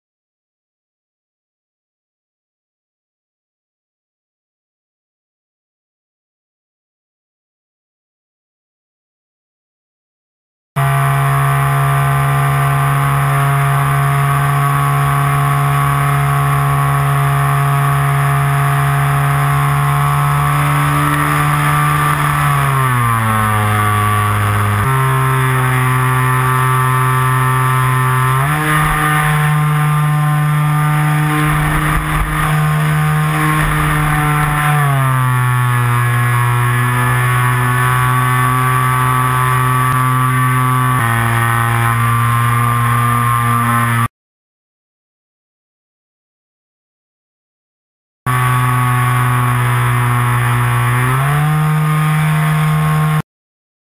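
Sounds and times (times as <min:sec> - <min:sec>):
model plane motor and propeller: 0:10.8 - 0:44.1, 0:48.3 - 0:53.2.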